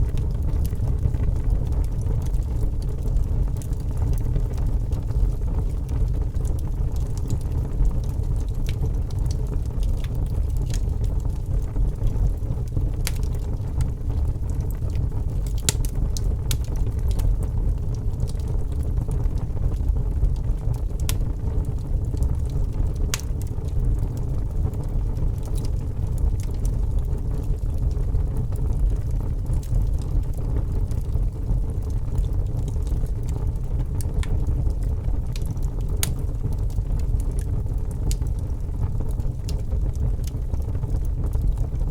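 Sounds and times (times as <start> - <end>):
fire rumbling: 0.0 - 41.9
logs crackling and popping: 0.0 - 41.9.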